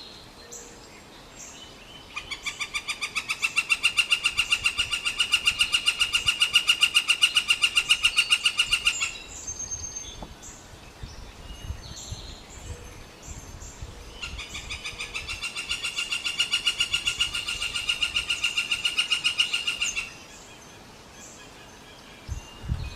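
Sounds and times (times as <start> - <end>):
woodpecker ringing call: 2.2 - 9.3, 14.2 - 20.2.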